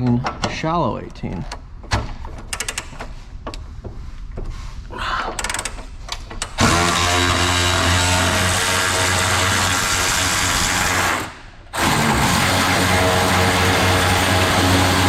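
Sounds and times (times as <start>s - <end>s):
ratchet metal clicks: 2.4s - 3.1s, 5.4s - 6.6s
power tool running: 6.6s - 15.0s.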